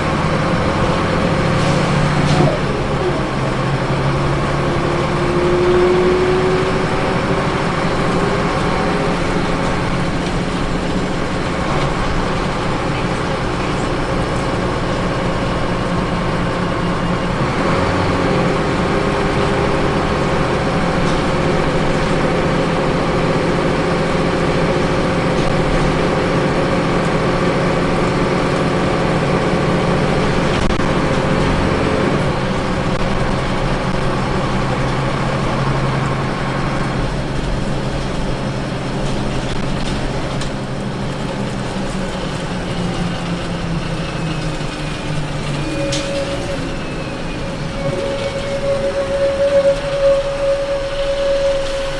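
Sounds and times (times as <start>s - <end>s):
bus engine and road hum: 0.0s - 51.9s
rising whine: 44.3s - 51.9s.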